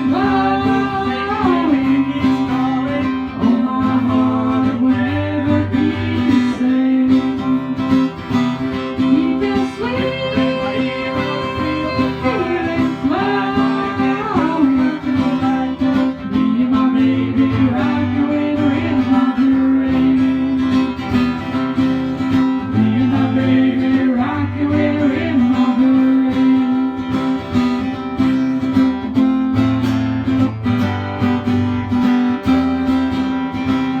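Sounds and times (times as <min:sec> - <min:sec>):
person singing: 0:00.0 - 0:08.2, 0:08.8 - 0:21.2, 0:22.6 - 0:27.2
acoustic guitar strumming: 0:00.0 - 0:34.0.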